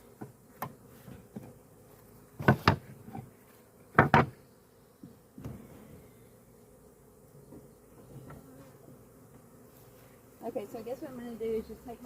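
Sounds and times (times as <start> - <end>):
faint hum of bees: 0.0 - 12.0
wooden hive frames knocking: 2.3 - 4.4.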